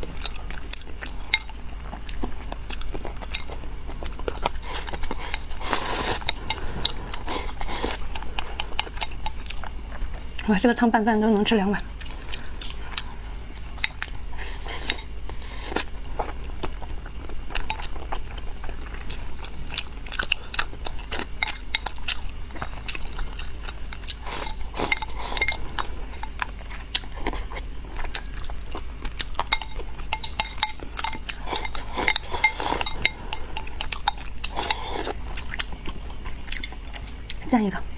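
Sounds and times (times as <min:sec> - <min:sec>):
chewing and mouth sounds: 0:00.0 - 0:10.6, 0:11.9 - 0:37.9
utensils clinking against a bowl: 0:04.3 - 0:09.6, 0:21.1 - 0:23.4, 0:24.0 - 0:26.5, 0:29.1 - 0:35.5.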